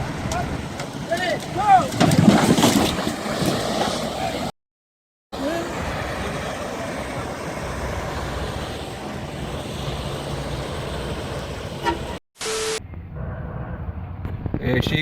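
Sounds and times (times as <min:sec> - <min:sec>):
vehicle rumbling: 0:00.0 - 0:04.5, 0:05.3 - 0:15.0.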